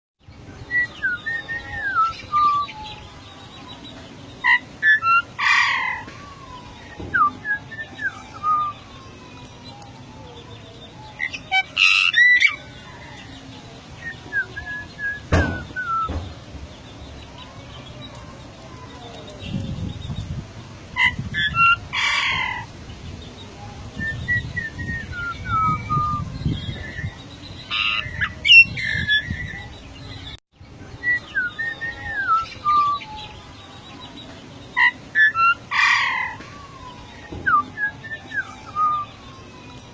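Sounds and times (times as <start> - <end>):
harsh bird calls: 0.2 - 39.9
bird whistled notes: 14.0 - 16.2.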